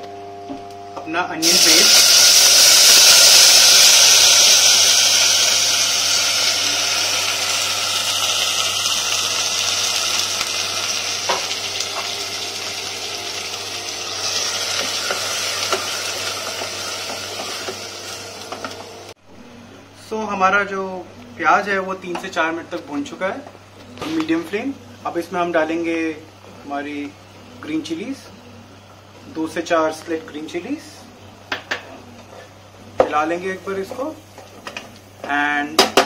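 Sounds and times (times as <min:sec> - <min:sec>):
onion paste sizzling in oil: 0:01.4 - 0:19.2.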